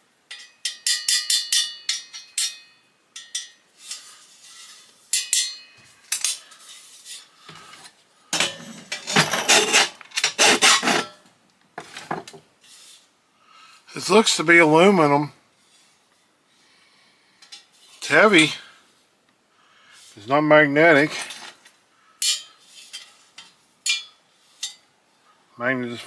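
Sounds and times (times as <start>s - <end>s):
metal parts clinking: 8.4s - 11.1s
metal parts scraping: 8.4s - 11.2s.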